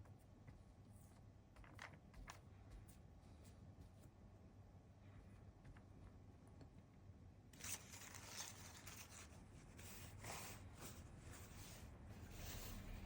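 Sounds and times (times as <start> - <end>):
paper rustling and scraping: 7.6 - 13.0.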